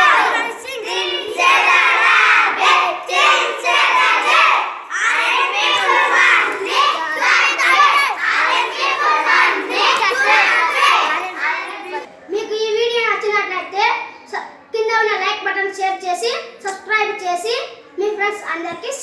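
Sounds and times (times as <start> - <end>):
children chanting in unison: 0.0 - 12.1.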